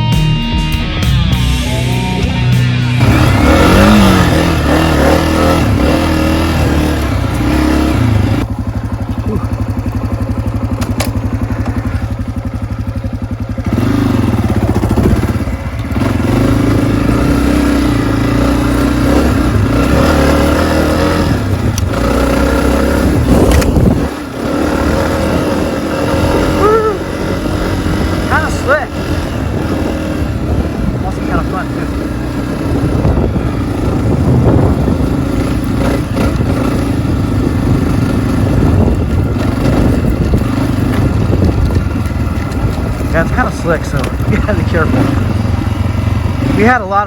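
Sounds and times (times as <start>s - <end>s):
dirt bike engine revving: 0.8s - 47.0s.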